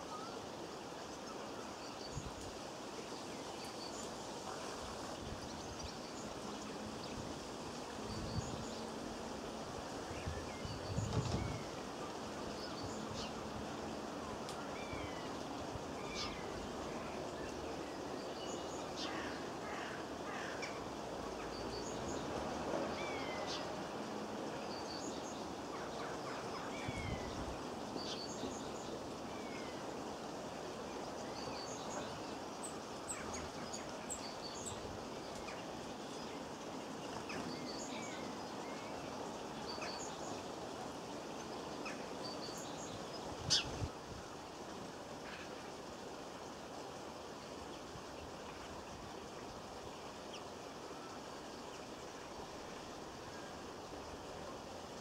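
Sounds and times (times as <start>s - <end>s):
steady background noise: 0.0s - 55.0s
small birds chirping: 24.6s - 44.0s.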